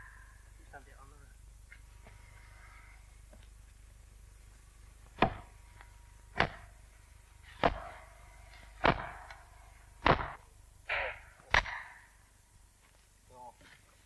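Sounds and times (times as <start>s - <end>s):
axe chopping into wood: 5.2s - 5.5s, 6.3s - 6.7s, 7.6s - 7.9s, 8.8s - 9.3s, 10.0s - 10.4s.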